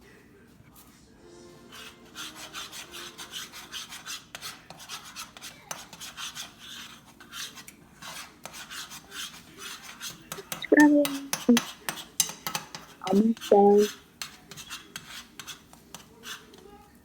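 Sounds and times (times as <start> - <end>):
utensil scraping eggs in pan: 1.7 - 17.0.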